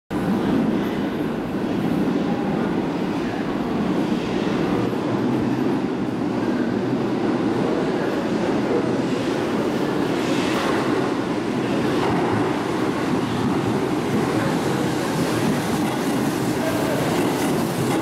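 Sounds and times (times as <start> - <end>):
train rumbling in tunnel: 0.1 - 18.0.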